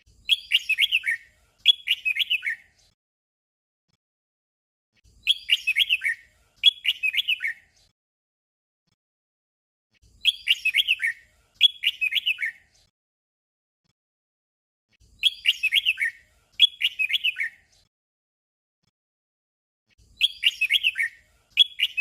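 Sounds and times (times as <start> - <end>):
bird singing warbling phrase: 0.3 - 2.6, 5.2 - 7.6, 10.1 - 12.6, 15.1 - 17.6, 20.0 - 22.0.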